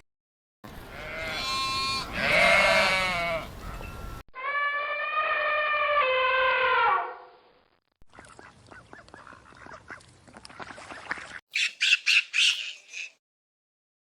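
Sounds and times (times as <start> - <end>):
bird short rapid calls: 10.8 - 13.2
bird harsh squawks: 11.5 - 13.2.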